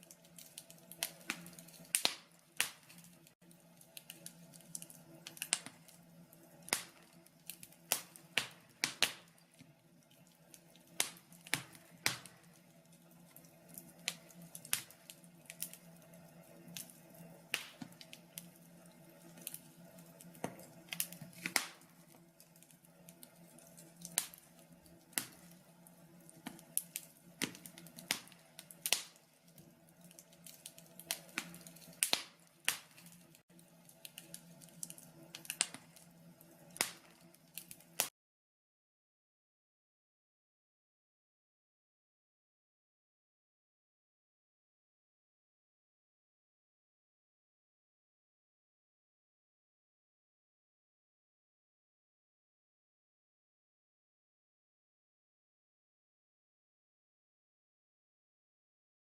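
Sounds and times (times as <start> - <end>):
wood fire crackling and popping: 0.0 - 38.1.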